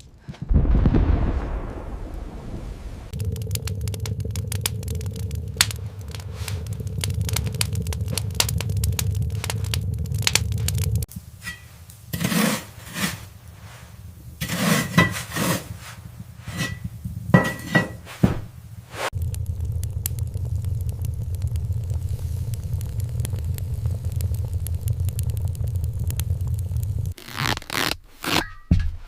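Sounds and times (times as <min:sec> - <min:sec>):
low rumble with crackling clicks: 0:00.0 - 0:11.3, 0:18.5 - 0:27.7.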